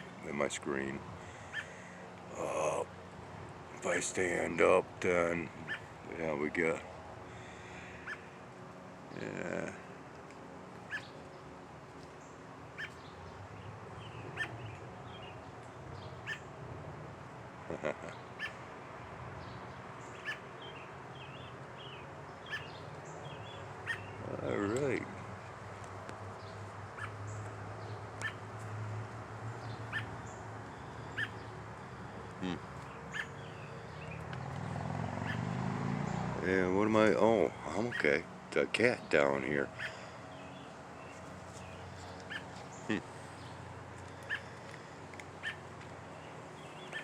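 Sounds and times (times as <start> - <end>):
bird chirping: 5.6 - 5.9, 10.9 - 11.4, 12.2 - 16.5, 19.4 - 24.8, 26.3 - 28.5, 29.6 - 36.3, 39.7 - 47.0.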